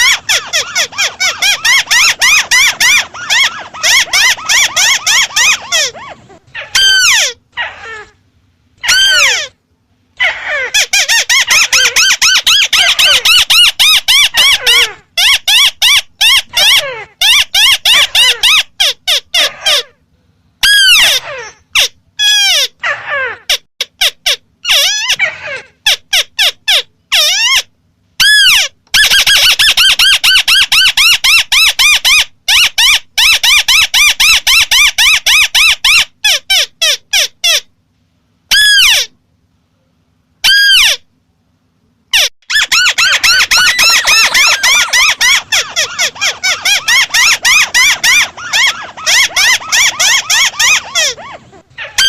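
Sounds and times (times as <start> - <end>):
rapid chattering nasal bird notes: 0.0 - 6.2, 42.2 - 51.5
bird calling: 0.0 - 8.2, 42.1 - 52.0.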